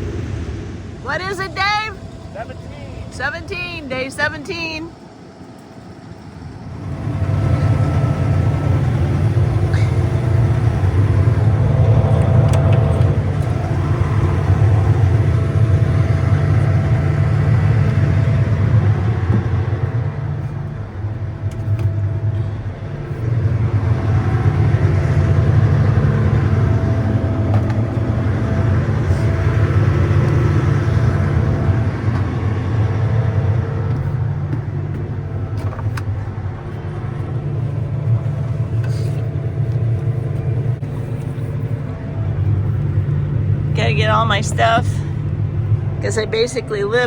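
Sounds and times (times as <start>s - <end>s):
vehicle engine and road rumble: 0.0s - 47.0s.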